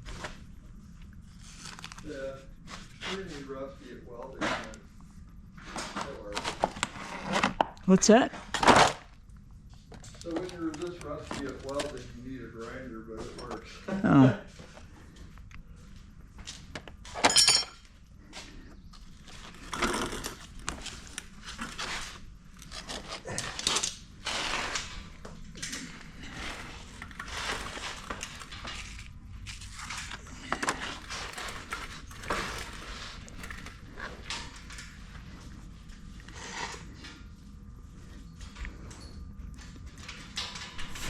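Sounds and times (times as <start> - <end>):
steel knocking and scraping: 30.2 - 34.7.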